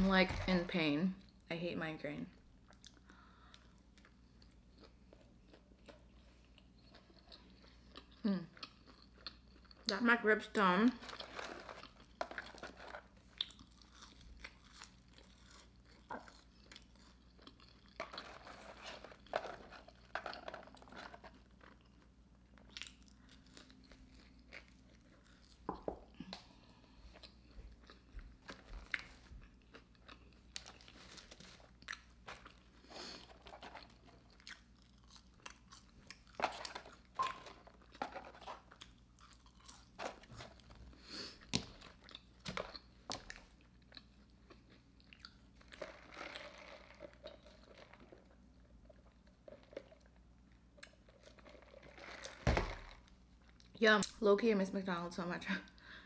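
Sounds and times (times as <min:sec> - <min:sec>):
person chewing fries: 0:02.6 - 0:10.0, 0:11.0 - 0:53.8.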